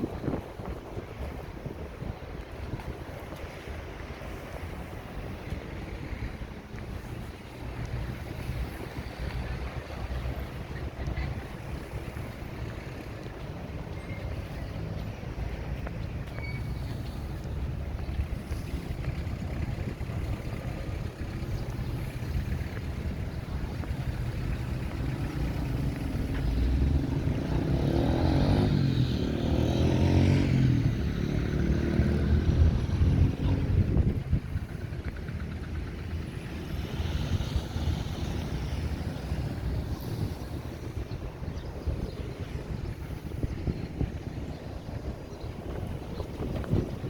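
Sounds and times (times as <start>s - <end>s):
traffic rumble: 0.0s - 47.0s
vehicle passing close by: 3.4s - 47.0s.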